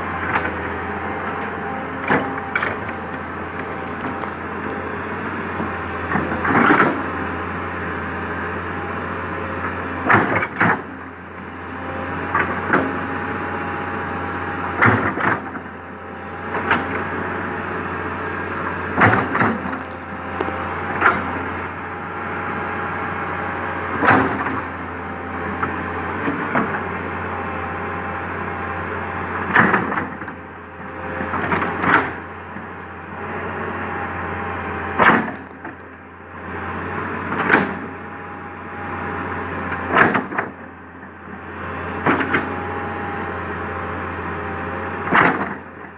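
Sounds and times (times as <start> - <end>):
excavator diesel engine running: 0.0 - 45.9
excavator bucket knocks and clanks: 0.2 - 7.2, 10.0 - 10.9, 19.0 - 21.6, 24.0 - 24.8, 35.0 - 35.8, 37.3 - 38.0, 39.8 - 40.6, 45.1 - 45.7.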